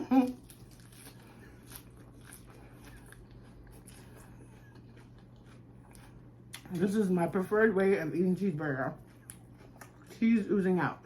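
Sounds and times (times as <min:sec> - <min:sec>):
chewing and mouth smacking: 0:00.2 - 0:07.0, 0:08.8 - 0:10.2.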